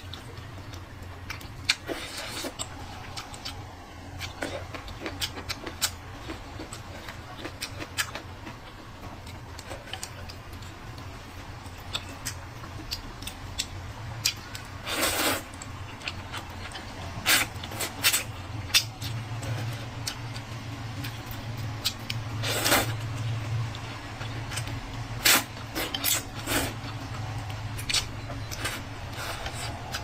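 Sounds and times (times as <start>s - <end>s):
low hum: 0.0s - 14.8s
chewing and utensil clicks: 0.0s - 30.0s.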